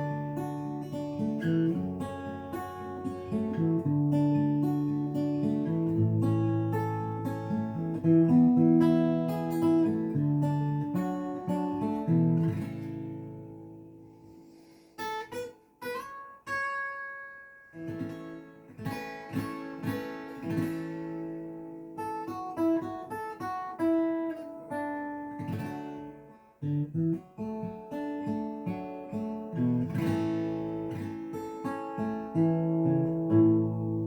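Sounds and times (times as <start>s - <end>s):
acoustic guitar instrumental: 0.0s - 34.0s.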